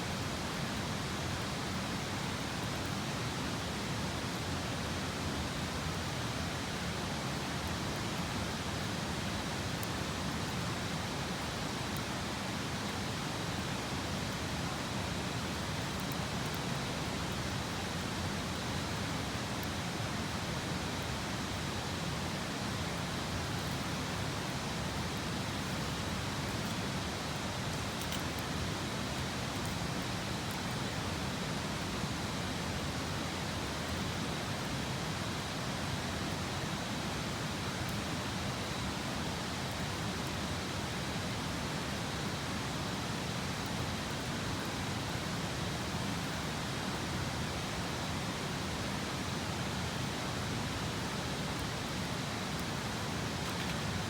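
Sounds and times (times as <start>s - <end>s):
river water rushing: 21.1s - 54.0s.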